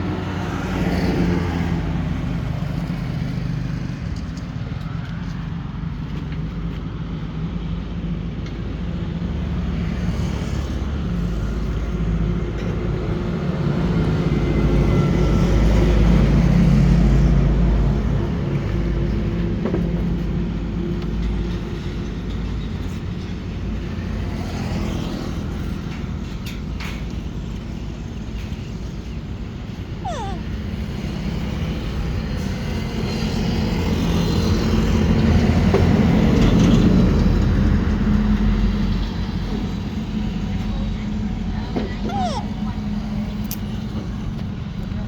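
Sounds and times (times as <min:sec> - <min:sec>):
motor vehicle passing: 0:30.0 - 0:32.2.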